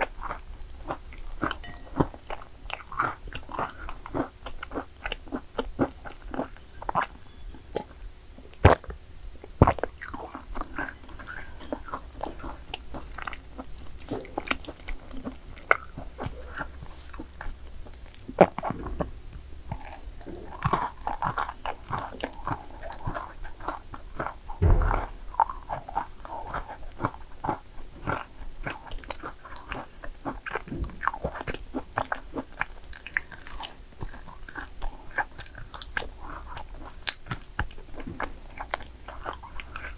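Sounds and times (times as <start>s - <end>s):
cookies crunching while chewed: 0.0s - 39.9s
dull thump: 24.6s - 25.5s.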